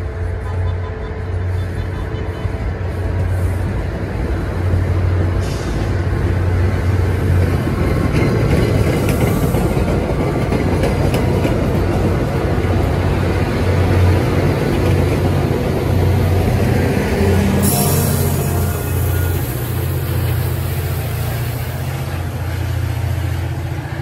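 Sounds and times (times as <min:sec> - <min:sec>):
train wheels rumbling on rail: 0:00.0 - 0:24.0
train hiss: 0:01.4 - 0:07.6, 0:08.6 - 0:10.4, 0:15.4 - 0:24.0
wheels clicking over rail joints: 0:07.2 - 0:16.2.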